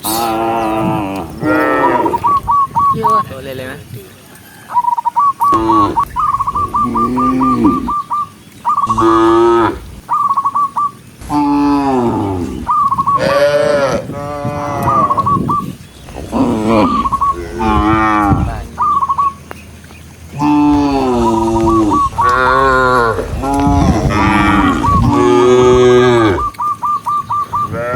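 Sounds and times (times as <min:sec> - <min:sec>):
cattle mooing: 0:00.0 - 0:02.3, 0:06.8 - 0:08.0, 0:08.8 - 0:09.9, 0:11.2 - 0:15.3, 0:16.0 - 0:19.5, 0:20.3 - 0:26.6, 0:27.7 - 0:27.9
high chirping trill: 0:00.0 - 0:03.3, 0:14.9 - 0:27.7.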